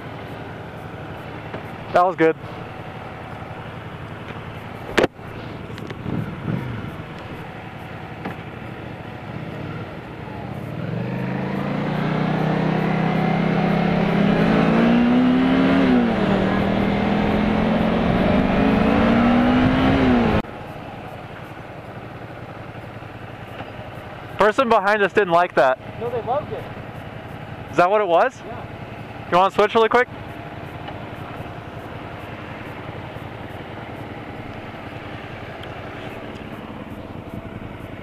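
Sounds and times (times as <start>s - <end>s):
motorcycle engine accelerating: 0.0s - 38.0s
low steady rumble: 12.7s - 38.0s.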